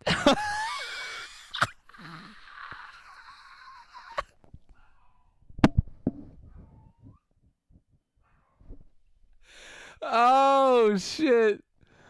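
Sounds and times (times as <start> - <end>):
person wavering cry: 0.3 - 4.3, 10.0 - 11.6
person airy wheeze: 9.4 - 10.0.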